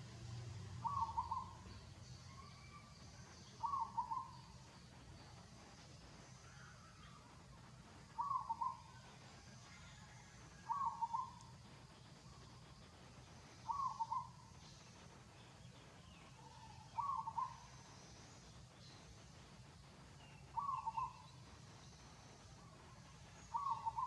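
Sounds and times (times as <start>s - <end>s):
faint low hum: 0.0s - 24.0s
bird cooing: 0.8s - 1.6s, 3.6s - 4.4s, 8.2s - 9.0s, 10.1s - 11.4s, 13.6s - 14.4s, 16.4s - 17.7s, 20.6s - 21.2s, 23.4s - 24.0s.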